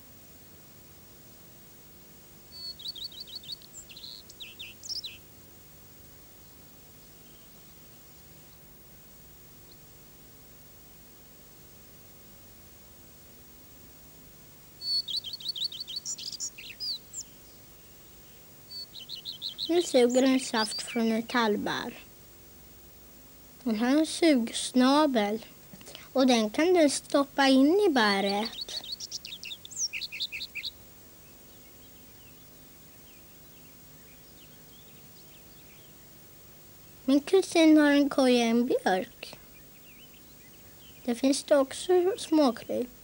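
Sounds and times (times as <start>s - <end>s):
low steady background: 0.0s - 43.0s
songbird singing high notes: 2.5s - 5.2s, 14.8s - 17.4s, 18.7s - 21.9s, 27.7s - 30.8s
distant bird chirps: 2.5s - 5.3s, 14.7s - 22.1s, 25.3s - 37.5s, 38.7s - 43.0s
small songbird singing: 2.5s - 5.4s, 6.9s - 8.7s, 14.7s - 22.1s, 23.6s - 43.0s.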